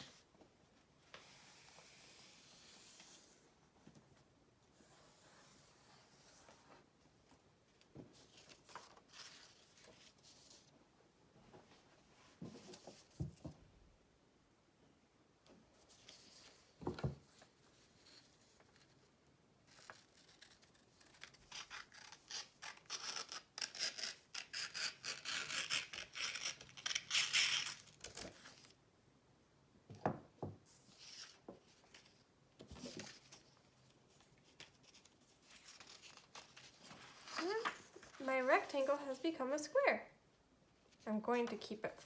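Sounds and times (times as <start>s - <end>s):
paper being folded and creased: 8.2s - 10.7s, 17.4s - 28.8s, 30.9s - 38.9s.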